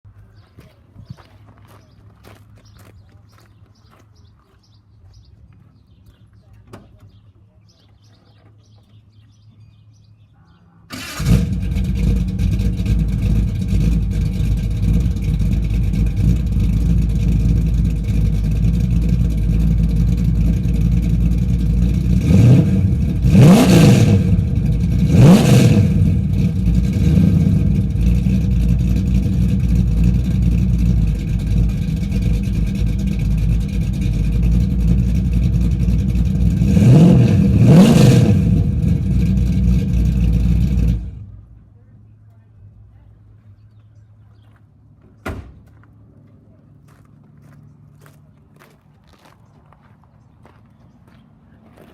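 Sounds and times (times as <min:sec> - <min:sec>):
engine revving: 0:10.9 - 0:41.4
car engine starting and idling: 0:10.9 - 0:41.8.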